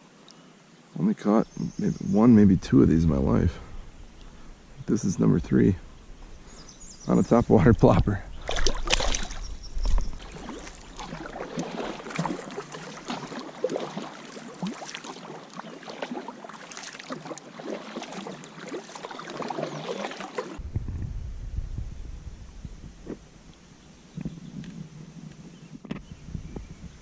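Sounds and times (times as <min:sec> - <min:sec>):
water splashing and dripping: 0:07.9 - 0:20.6.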